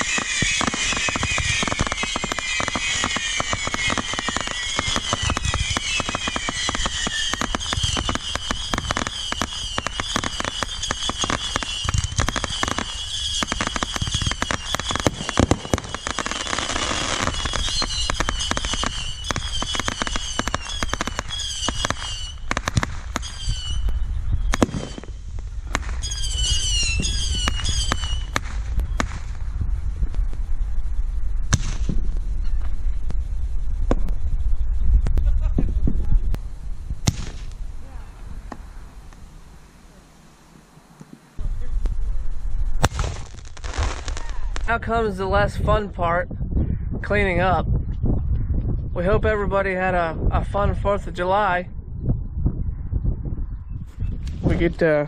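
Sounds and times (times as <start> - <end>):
firework whistles: 0.0 - 29.4
fireworks crackling bangs: 0.0 - 30.6, 31.4 - 34.2, 35.0 - 40.3, 42.7 - 45.9.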